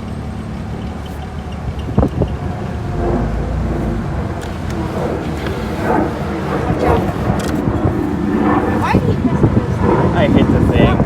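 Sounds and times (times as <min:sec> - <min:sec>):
car engine idling rough: 0:00.0 - 0:11.0.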